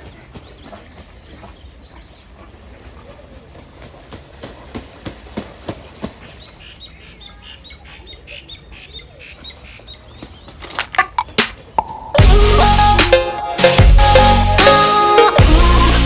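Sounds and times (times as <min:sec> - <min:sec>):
birds chirping: 0:00.0 - 0:03.1, 0:04.8 - 0:15.4
sharp taps and clicks: 0:10.7 - 0:12.0.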